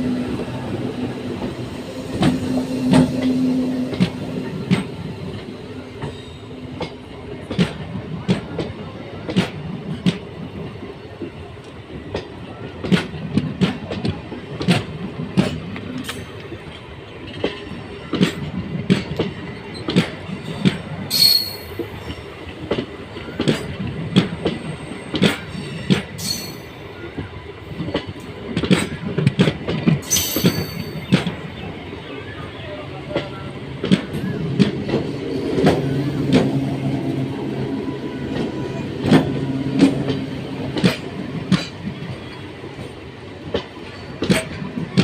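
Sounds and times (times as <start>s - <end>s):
steady train rumble: 0.0s - 45.0s
train wheels clattering over rail joints: 12.1s - 26.7s, 27.8s - 31.4s, 38.3s - 45.0s
high wheel screeches: 30.0s - 31.0s.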